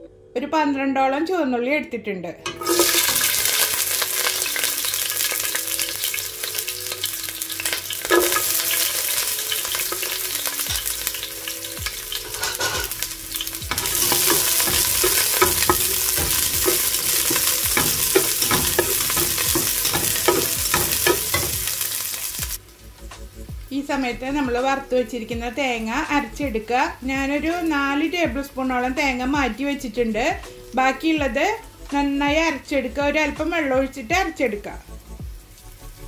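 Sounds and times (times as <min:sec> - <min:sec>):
shallots sizzling in oil: 0:02.5 - 0:36.0
spatula scraping and tapping pan: 0:07.7 - 0:11.0, 0:11.8 - 0:22.6.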